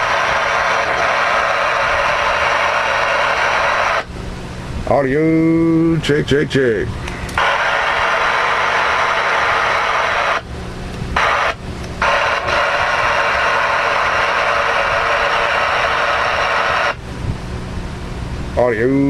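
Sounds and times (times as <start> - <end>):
radio static hissing: 0.0 - 4.1, 7.4 - 10.5, 11.2 - 17.0.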